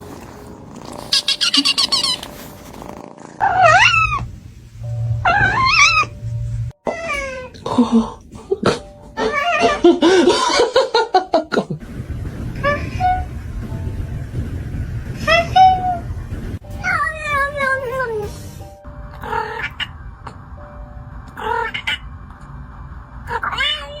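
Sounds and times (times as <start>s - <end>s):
short high squeaks: 1.1s - 2.6s
cat meowing: 3.4s - 4.3s, 5.2s - 6.2s, 6.8s - 7.6s, 9.2s - 9.8s, 19.2s - 20.0s, 23.3s - 24.0s
kitten meowing: 3.4s - 4.3s, 5.2s - 6.1s.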